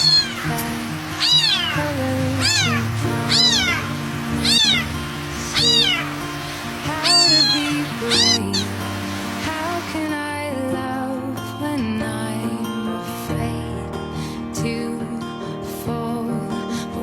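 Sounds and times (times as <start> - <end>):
kitten meowing: 0.0 - 0.5, 1.2 - 1.8, 2.4 - 3.8, 4.4 - 4.9, 5.5 - 6.0, 7.0 - 8.6
soft background music: 0.0 - 17.0.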